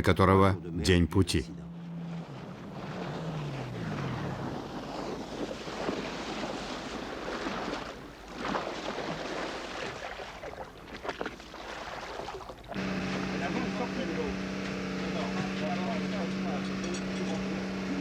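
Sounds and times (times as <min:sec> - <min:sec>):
sea noise: 0:00.0 - 0:18.0
wind: 0:00.0 - 0:18.0
low falling tone: 0:01.4 - 0:04.8.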